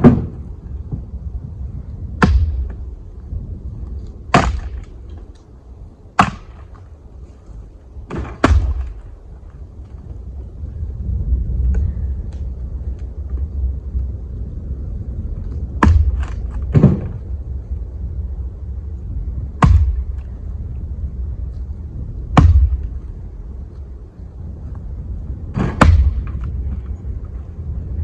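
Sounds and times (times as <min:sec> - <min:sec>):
wind buffeting microphone: 0:00.0 - 0:28.0
sharp loud knocks: 0:08.1 - 0:09.0, 0:15.8 - 0:17.2, 0:19.6 - 0:20.1, 0:22.4 - 0:22.9, 0:25.6 - 0:26.4.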